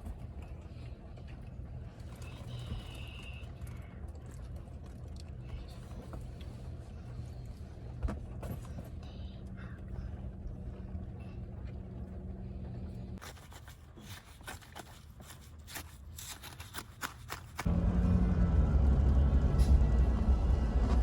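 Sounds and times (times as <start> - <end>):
steady low hum: 0.0 - 16.2, 17.6 - 21.0
small clicks and scraping: 13.2 - 17.7.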